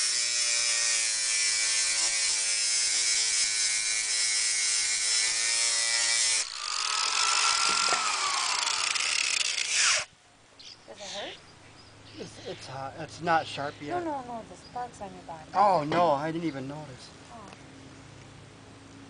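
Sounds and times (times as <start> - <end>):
angle grinder grinding steel: 0.0 - 10.1.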